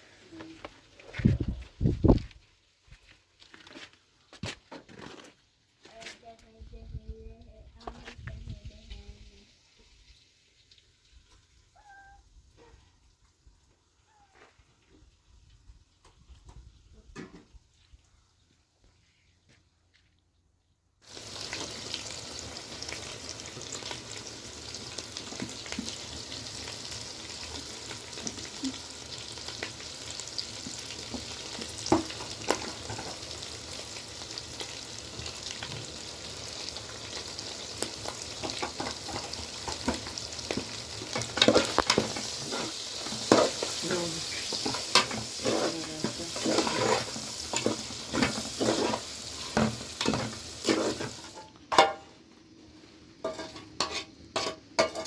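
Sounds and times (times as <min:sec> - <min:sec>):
food sizzling in a pan: 0:08.3 - 0:12.2, 0:21.0 - 0:55.0
utensil knocking and scraping pan: 0:38.1 - 0:52.0, 0:53.2 - 0:55.0.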